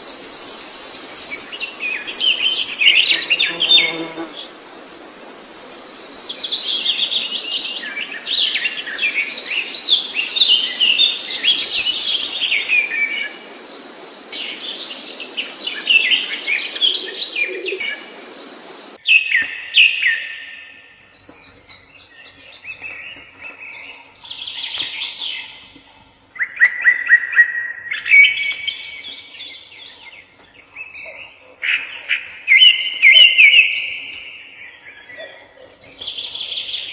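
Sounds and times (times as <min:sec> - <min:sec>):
background hiss: 0:00.0 - 0:19.0
songbirds chirping and trilling: 0:00.0 - 0:36.9.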